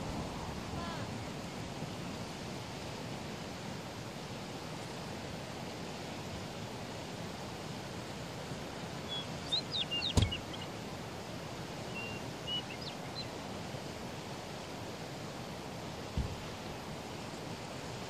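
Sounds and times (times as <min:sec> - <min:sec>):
outdoor background hiss: 0:00.0 - 0:18.0
high thin bird chirps: 0:09.1 - 0:10.7.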